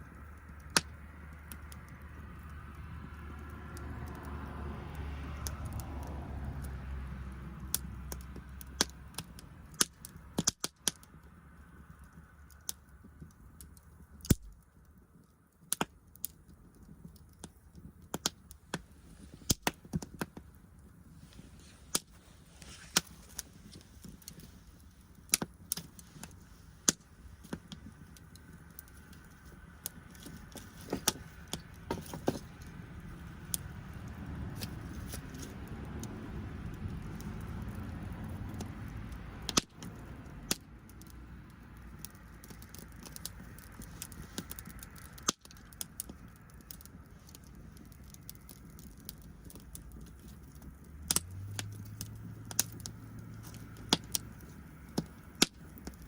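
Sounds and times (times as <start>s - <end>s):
wood fire crackling: 0.0s - 56.0s
sharp pops: 17.4s - 20.5s, 21.8s - 32.7s, 42.4s - 56.0s.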